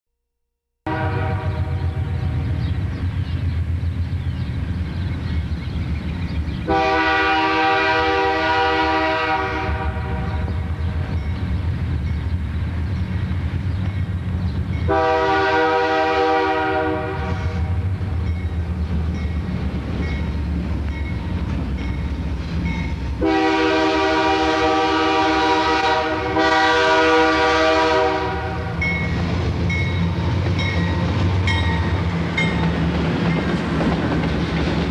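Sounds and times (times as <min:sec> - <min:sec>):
multi-note air horn blasts: 0:00.9 - 0:01.8, 0:06.7 - 0:10.4, 0:14.9 - 0:17.7, 0:23.2 - 0:28.7
locomotive engine rumble: 0:01.2 - 0:34.9.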